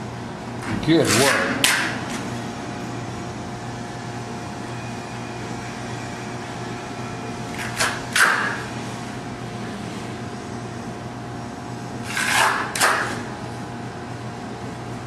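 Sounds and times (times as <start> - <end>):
steady mechanical hum: 0.0 - 15.0
trowel scraping slurry: 12.0 - 12.9.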